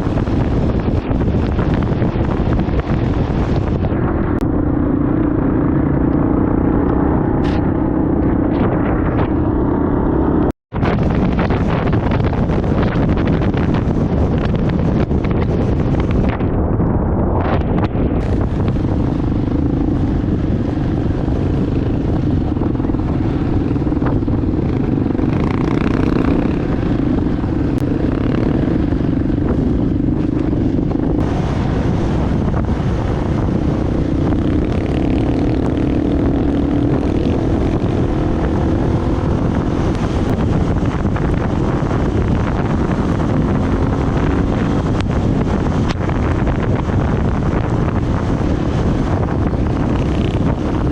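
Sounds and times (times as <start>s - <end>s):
engine running: 0.0s - 50.9s
wind on microphone: 0.0s - 50.9s.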